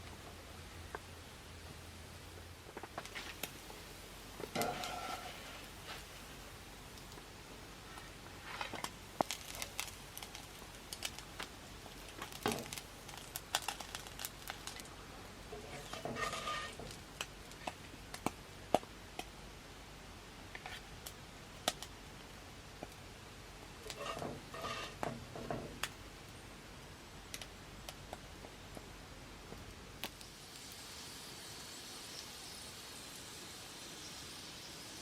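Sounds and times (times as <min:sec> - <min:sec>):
rustling: 0:00.0 - 0:18.3, 0:23.8 - 0:25.8.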